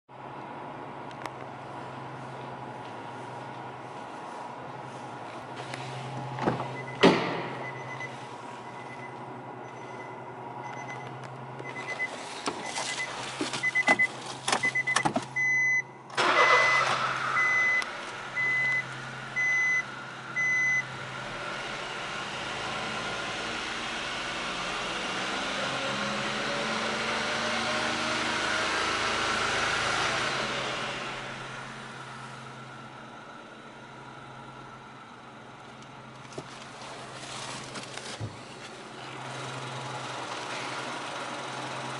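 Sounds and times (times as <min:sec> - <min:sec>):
car engine starting and idling: 0:00.1 - 0:41.9
thump: 0:06.4 - 0:07.6.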